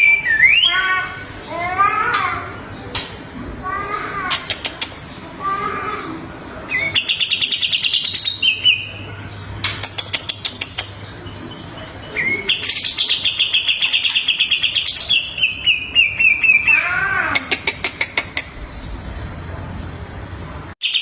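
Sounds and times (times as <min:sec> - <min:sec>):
sharp clicking bird notes: 0:02.1 - 0:03.2, 0:04.3 - 0:05.0, 0:09.6 - 0:11.1
songbird trilling: 0:06.7 - 0:09.1, 0:09.9 - 0:17.5.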